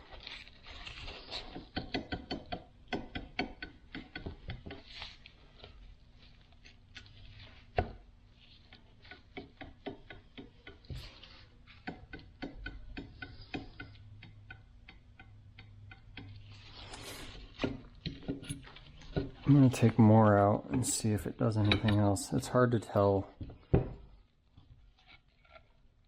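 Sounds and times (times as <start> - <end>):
metal scrape: 16.4 - 20.1.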